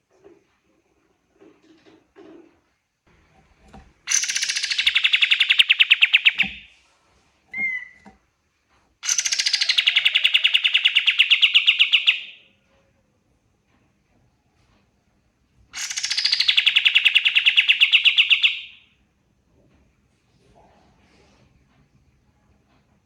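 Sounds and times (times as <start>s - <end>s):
songbird rattling trills: 4.1s - 6.6s, 15.8s - 18.7s.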